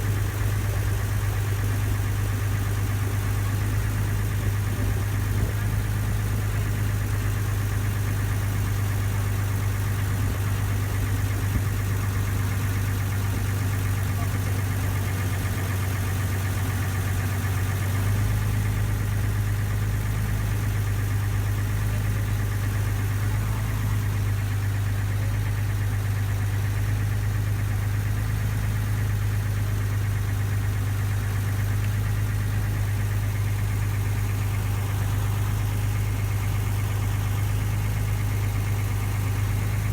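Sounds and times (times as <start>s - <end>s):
ferry engine humming: 31.3s - 39.9s.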